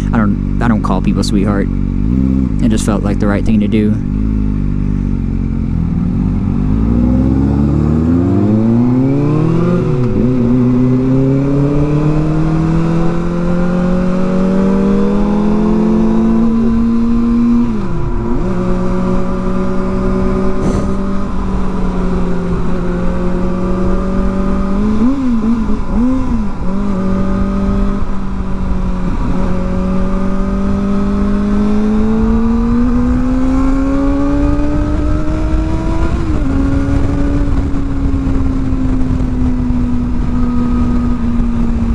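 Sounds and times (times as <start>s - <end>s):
motorcycle engine accelerating: 0.0s - 41.9s
wind noise: 16.4s - 24.4s, 25.2s - 41.9s.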